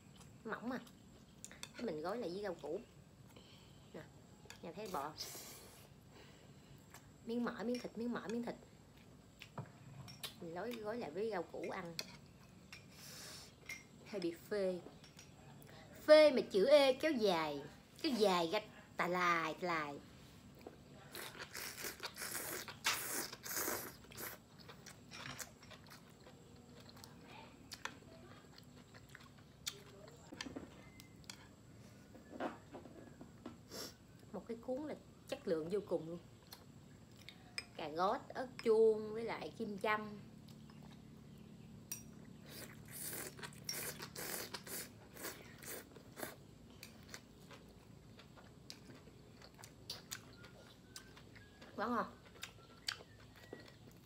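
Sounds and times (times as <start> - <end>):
crunchy chewing: 20.5 - 32.4, 40.3 - 54.0.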